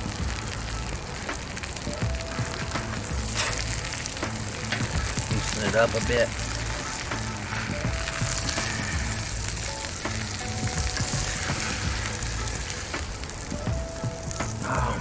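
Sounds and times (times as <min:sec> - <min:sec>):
meat and onions sizzling on griddle: 0:00.0 - 0:15.0
metal spatula scraping griddle: 0:02.8 - 0:13.5
spatula knocking on griddle: 0:07.8 - 0:09.2.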